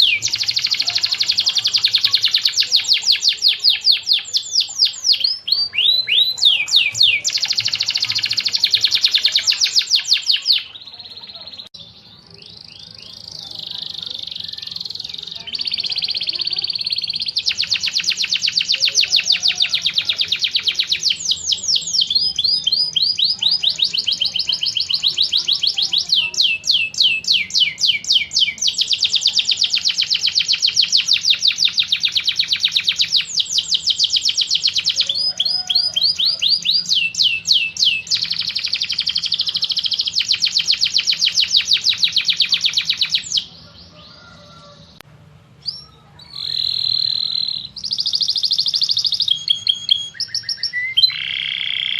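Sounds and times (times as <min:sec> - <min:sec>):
bird song with sweeping notes: 0:45.6 - 0:51.9.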